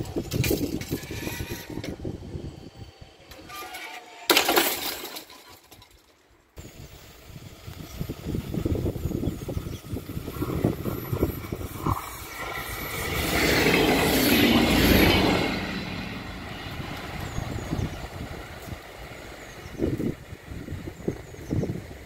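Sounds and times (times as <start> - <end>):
train passing close by: 10.0 - 22.0.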